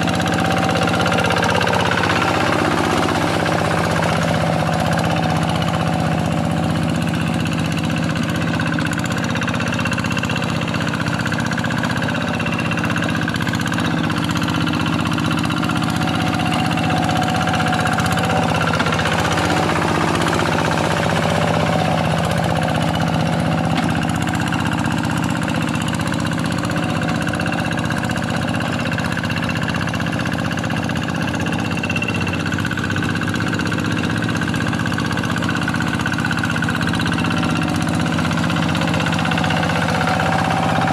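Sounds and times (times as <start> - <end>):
single-cylinder diesel engine running: 0.0 - 40.9.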